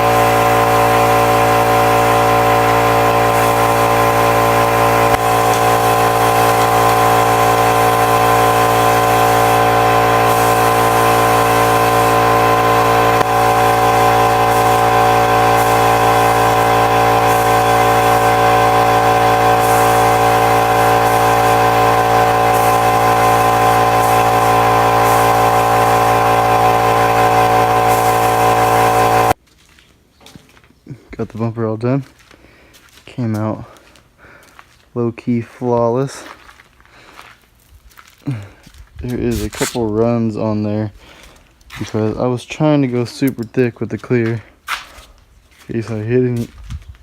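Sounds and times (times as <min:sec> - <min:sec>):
hiss: 0:00.0 - 0:29.4
motor humming: 0:00.0 - 0:29.4.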